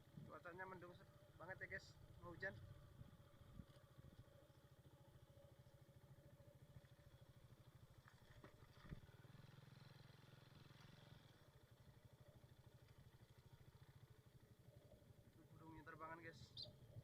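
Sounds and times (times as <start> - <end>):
low pulsing hum: 0.0 - 9.2.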